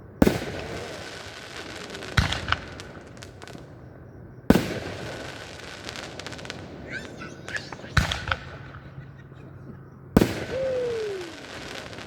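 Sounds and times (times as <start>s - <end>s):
fireworks bangs with rumble: 0.2s - 3.8s, 4.4s - 12.0s
crackling firework pops: 0.2s - 3.9s, 4.5s - 9.1s, 10.2s - 12.0s.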